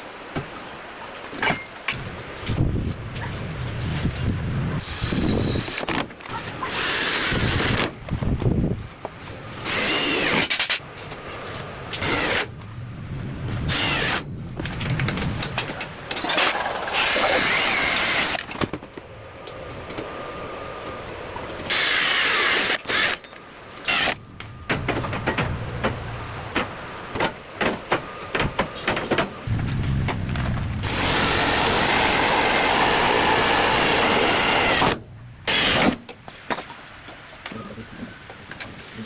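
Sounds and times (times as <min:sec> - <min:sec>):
handheld power tool running: 0:17.0 - 0:18.4, 0:30.8 - 0:36.0.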